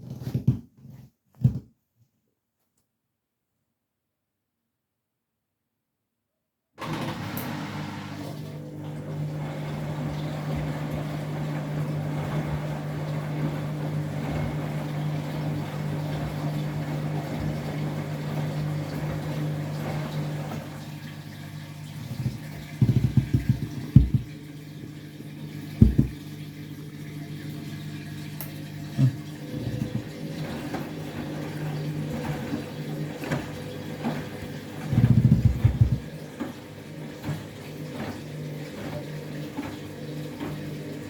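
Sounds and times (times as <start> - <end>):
washing machine hum: 6.8 - 41.0
water rushing in: 6.8 - 41.0
dull thumps from drum: 22.1 - 24.4, 25.8 - 26.2, 29.0 - 30.2, 34.9 - 36.1.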